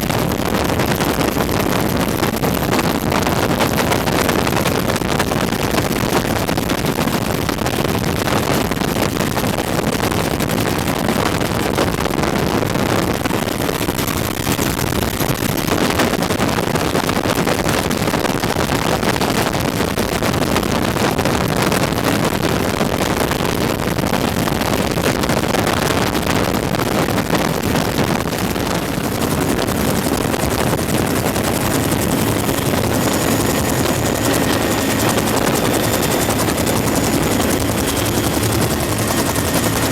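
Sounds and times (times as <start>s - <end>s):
helicopter in flight from on board: 0.0s - 39.9s.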